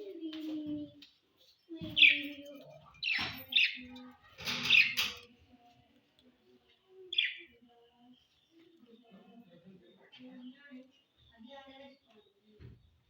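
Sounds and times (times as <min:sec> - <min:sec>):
parrots chirping and squawking: 0:01.8 - 0:05.4, 0:07.1 - 0:07.5.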